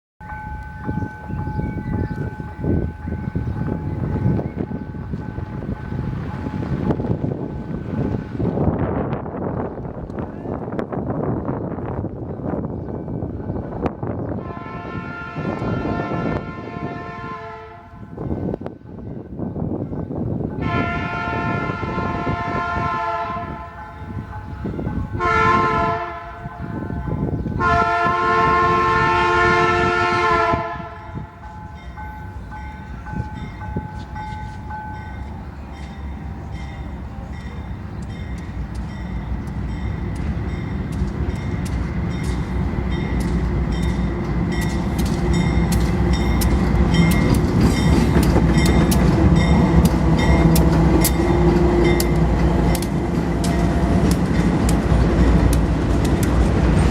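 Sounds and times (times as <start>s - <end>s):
train horn: 14.3s - 18.3s, 20.6s - 24.2s, 25.1s - 31.5s
train engine running: 30.7s - 56.9s
wheels clicking over rail joints: 37.9s - 56.9s.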